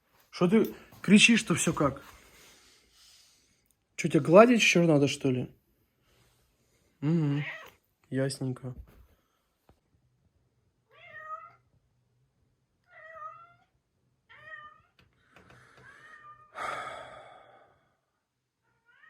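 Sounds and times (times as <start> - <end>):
cat meowing: 7.3 - 7.8, 10.9 - 11.7, 12.8 - 15.0, 15.8 - 16.6, 18.8 - 19.0.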